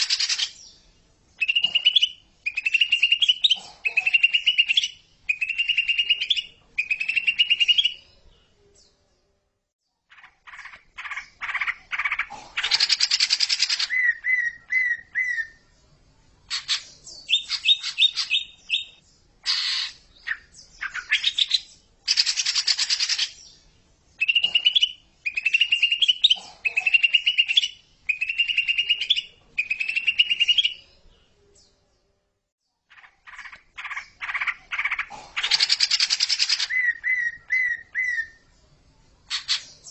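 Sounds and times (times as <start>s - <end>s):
bird singing whistled phrases: 1.4s - 3.4s, 13.8s - 15.6s, 24.2s - 26.2s, 26.8s - 30.8s, 36.5s - 38.4s
bird harsh chattering: 1.4s - 8.0s, 10.1s - 15.6s, 16.5s - 23.4s, 24.2s - 30.8s, 32.9s - 38.4s, 39.3s - 39.9s.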